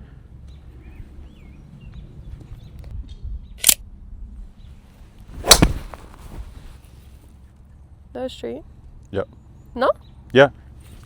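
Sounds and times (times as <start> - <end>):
small click: 2.8 - 3.8
golf club striking ball: 5.4 - 6.3.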